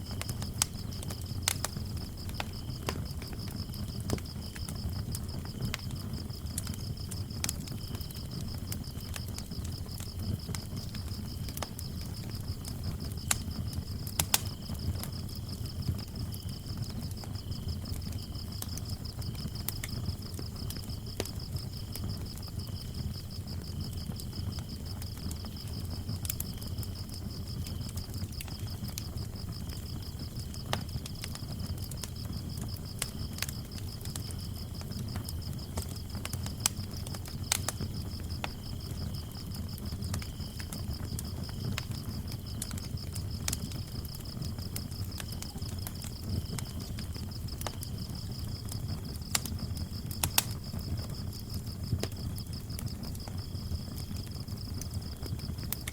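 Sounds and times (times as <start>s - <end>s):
crickets chirping: 0.0s - 55.9s
faint cricket chirping: 0.0s - 55.9s
wood fire crackling: 0.0s - 55.9s.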